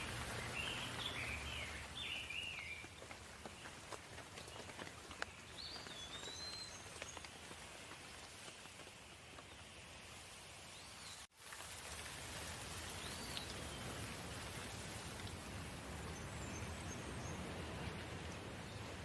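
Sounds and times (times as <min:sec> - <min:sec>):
light rain pattering: 0:00.0 - 0:19.0.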